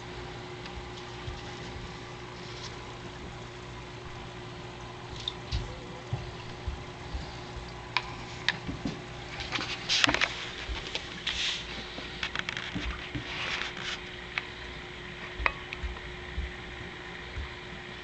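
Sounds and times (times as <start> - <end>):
faint steady hum: 0.0 - 18.0
small clicks and handling rustles: 7.6 - 14.5.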